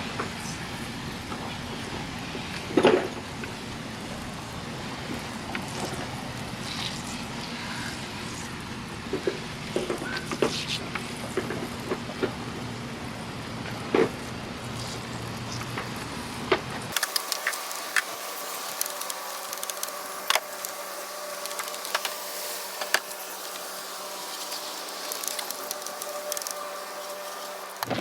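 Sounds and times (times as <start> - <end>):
steady hum: 0.0 - 28.0
sharp ticks and knocks: 16.5 - 23.7
pressure washer water spray: 16.9 - 28.0.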